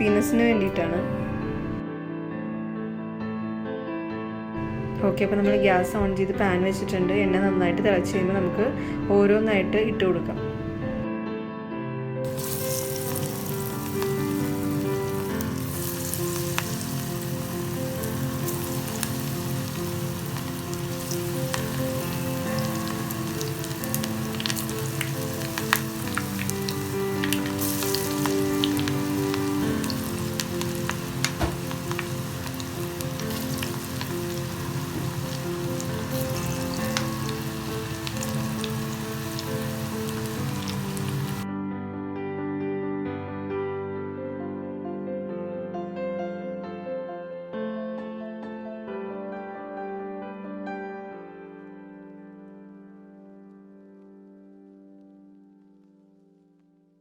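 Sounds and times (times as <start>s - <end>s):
soft background music: 0.0s - 57.0s
food deep-frying in oil: 12.3s - 41.4s.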